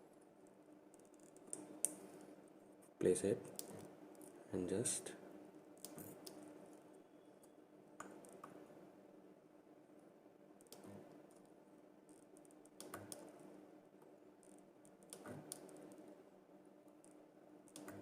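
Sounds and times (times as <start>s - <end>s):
low steady hum: 0.0s - 18.0s
faint sharp clicks: 17.0s - 18.0s.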